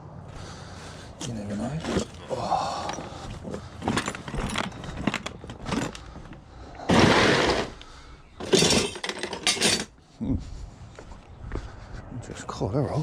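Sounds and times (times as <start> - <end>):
metal scrap clattering and scraping: 8.4 - 10.0.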